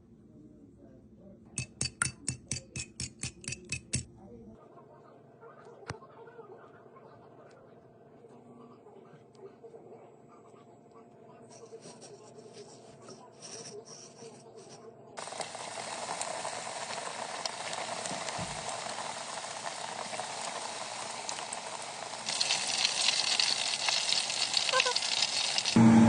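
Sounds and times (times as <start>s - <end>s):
chicken frying in hot oil: 15.2s - 26.0s.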